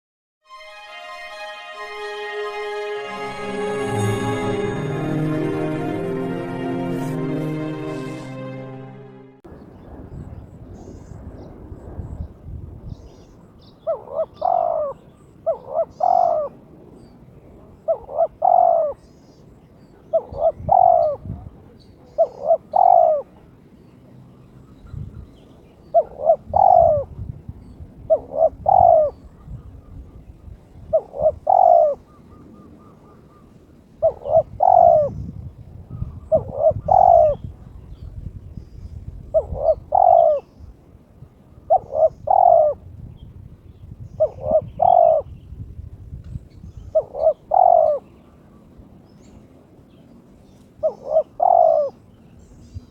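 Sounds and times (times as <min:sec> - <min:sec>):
dove cooing hoarsely: 0:13.8 - 0:16.6, 0:17.9 - 0:19.0, 0:20.1 - 0:21.2, 0:22.2 - 0:23.3, 0:26.0 - 0:27.1, 0:28.1 - 0:29.2, 0:30.9 - 0:32.4, 0:34.0 - 0:35.2, 0:36.1 - 0:37.5, 0:39.3 - 0:40.5, 0:41.7 - 0:42.8, 0:44.2 - 0:45.3, 0:46.9 - 0:48.0, 0:50.8 - 0:52.0.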